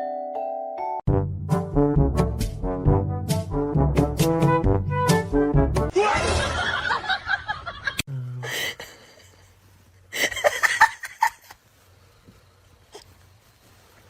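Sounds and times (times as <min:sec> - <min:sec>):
brass music: 0:01.1 - 0:05.9
people laughing: 0:05.9 - 0:09.5, 0:10.1 - 0:11.6.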